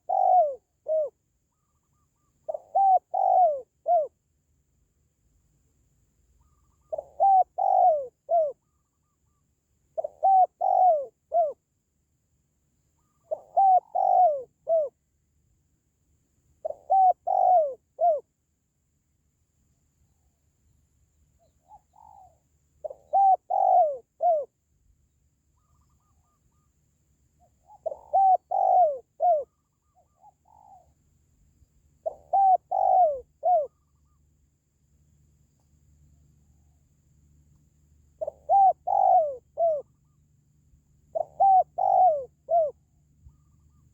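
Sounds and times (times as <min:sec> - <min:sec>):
dove cooing: 0:00.0 - 0:04.2, 0:06.4 - 0:09.2, 0:09.9 - 0:11.6, 0:13.0 - 0:15.0, 0:16.6 - 0:18.3, 0:21.5 - 0:24.5, 0:25.6 - 0:26.7, 0:27.6 - 0:30.9, 0:32.0 - 0:34.2, 0:38.2 - 0:40.2, 0:41.1 - 0:43.9.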